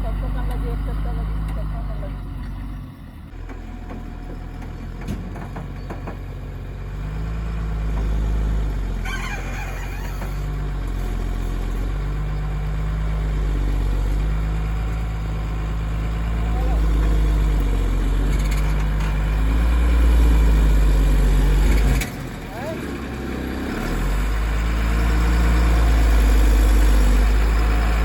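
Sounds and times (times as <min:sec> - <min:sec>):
diesel engine revving: 0:00.0 - 0:28.0
brief high squeal: 0:09.0 - 0:10.4.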